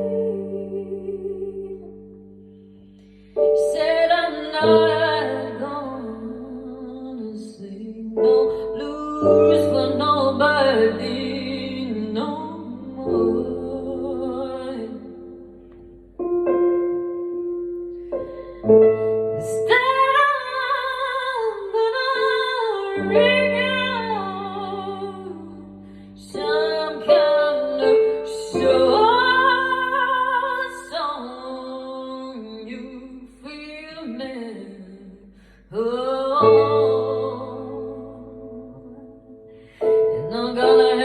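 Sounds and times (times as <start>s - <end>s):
wordless singing with vibrato: 0.0s - 15.8s, 18.0s - 41.0s
sustained keyboard chords: 8.2s - 30.6s.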